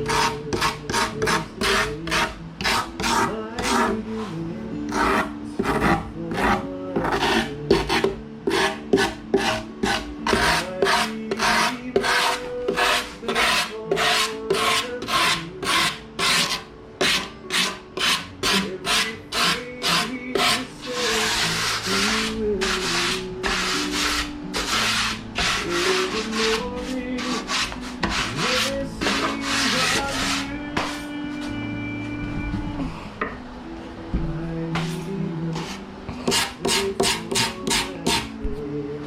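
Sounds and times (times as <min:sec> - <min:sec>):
rasping on foam: 0:00.0 - 0:04.0, 0:04.9 - 0:30.4.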